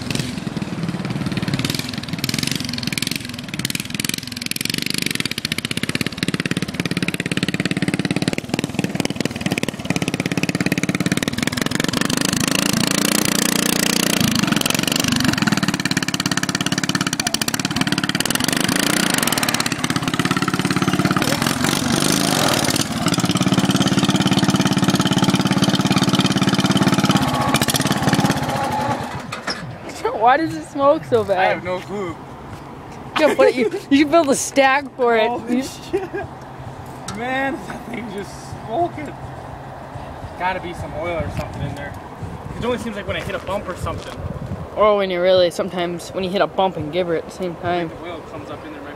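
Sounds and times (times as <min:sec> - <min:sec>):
lawnmower engine revving: 0:00.0 - 0:31.8.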